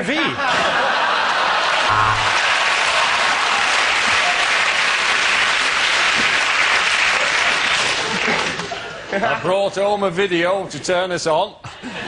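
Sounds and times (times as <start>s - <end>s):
audience applauding: 1.2s - 8.9s.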